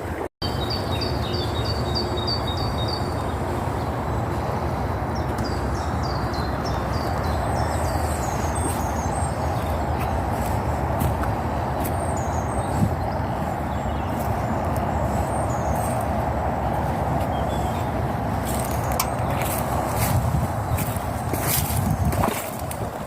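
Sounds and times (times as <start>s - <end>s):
small bird singing: 0.4s - 3.5s, 5.2s - 10.6s, 11.8s - 16.1s, 16.7s - 22.3s.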